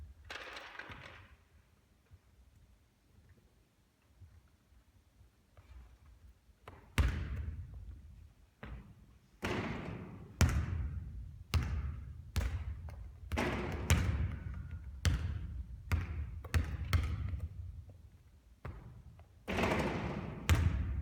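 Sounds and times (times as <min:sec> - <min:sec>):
basketball bouncing on court: 0:06.6 - 0:21.0.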